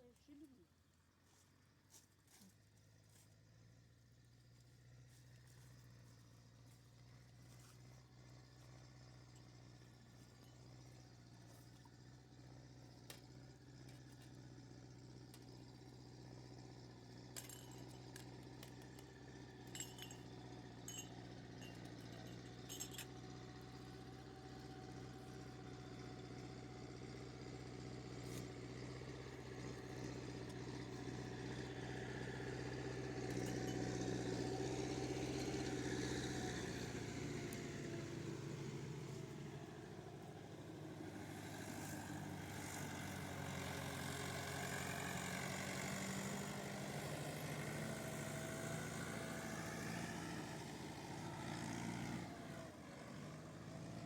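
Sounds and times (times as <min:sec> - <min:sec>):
tractor engine running: 0:05.2 - 0:52.6
light metallic clinks: 0:09.2 - 0:11.1, 0:17.3 - 0:23.5, 0:33.3 - 0:34.2.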